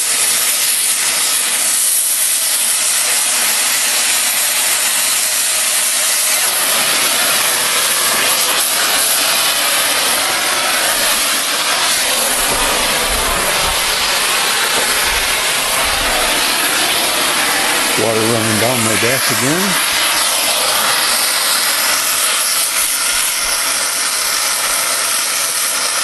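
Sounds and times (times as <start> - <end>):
cutting torch hissing: 0.0 - 26.0.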